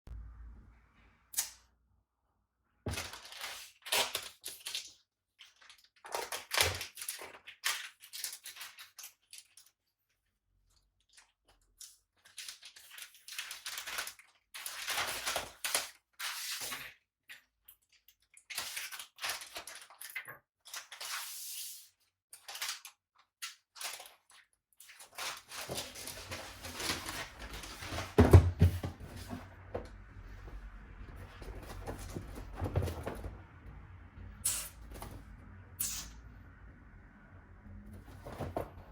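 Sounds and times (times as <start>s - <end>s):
cardboard scraping and rustling: 25.0s - 33.6s, 37.9s - 38.9s.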